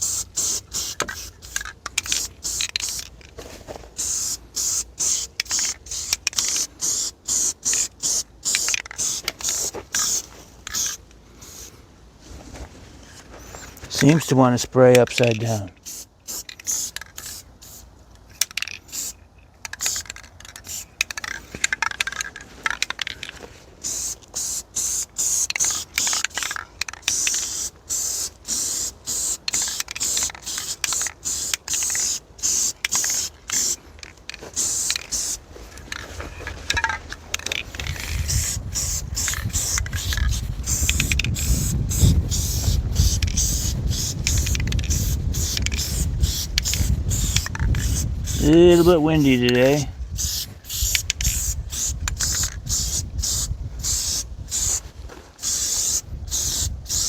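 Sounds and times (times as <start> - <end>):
aerosol spray can hissing: 0.0 - 3.1, 4.0 - 11.7, 18.8 - 19.2, 23.8 - 33.8, 34.5 - 35.4, 37.4 - 54.8, 55.4 - 57.0
wind rumble on microphone: 37.8 - 48.9, 49.8 - 55.0, 56.0 - 57.0.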